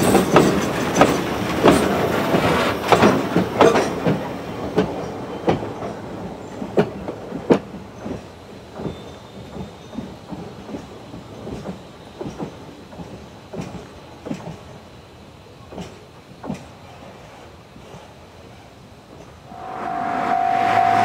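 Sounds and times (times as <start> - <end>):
train wheels clacking over rail joints: 0.0 - 19.5
train rolling rumble: 0.0 - 21.0.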